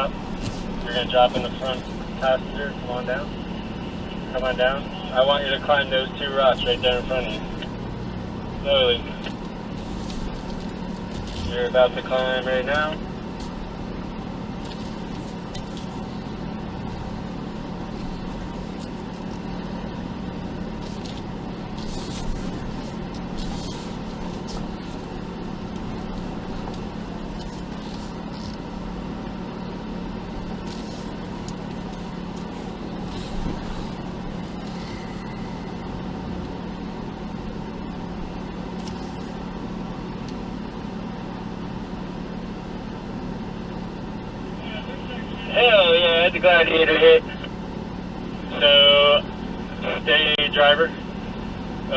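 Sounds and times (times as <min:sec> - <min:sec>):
car engine running: 0:00.0 - 0:51.9.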